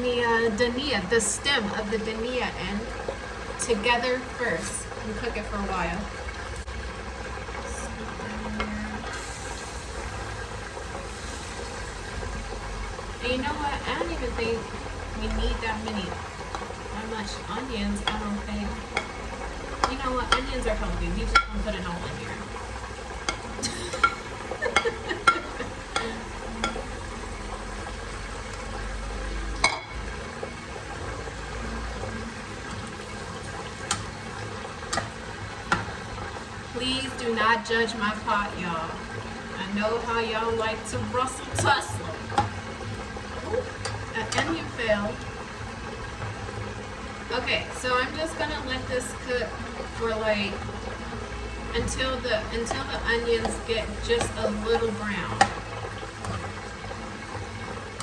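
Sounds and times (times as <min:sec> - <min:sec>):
onions sizzling in oil: 0:00.0 - 0:58.0
utensil clicking and scraping pot: 0:13.7 - 0:28.8, 0:51.8 - 0:58.0.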